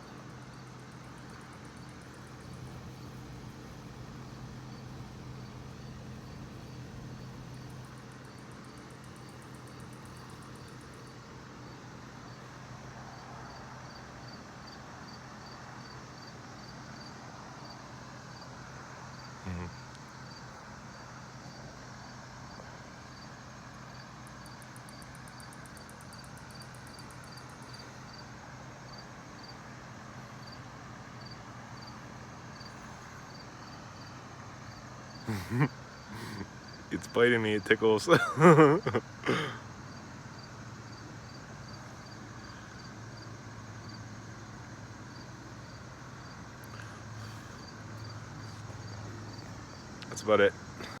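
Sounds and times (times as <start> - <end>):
low steady hum: 0.0 - 12.9
cricket chirping: 0.0 - 51.0.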